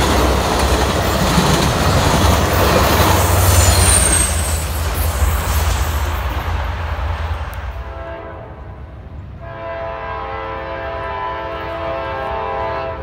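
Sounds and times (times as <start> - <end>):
train rumbling past: 0.0 - 13.0
locomotive air horn chord: 7.6 - 13.0.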